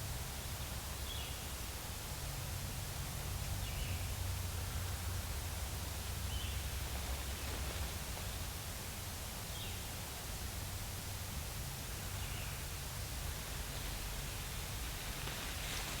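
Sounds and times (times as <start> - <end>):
low rumble and hiss: 0.0 - 16.0.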